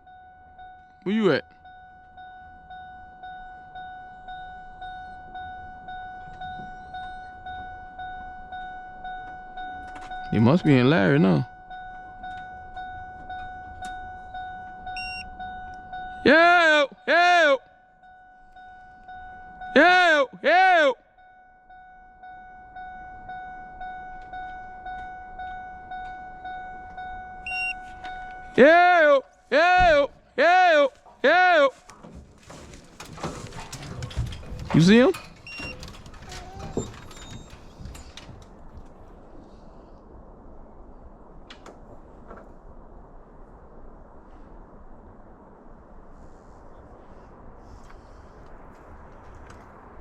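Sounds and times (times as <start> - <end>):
short high beep: 0.0 - 17.5, 21.2 - 28.7
vehicle warning chime dinging: 0.0 - 28.8, 33.0 - 38.4.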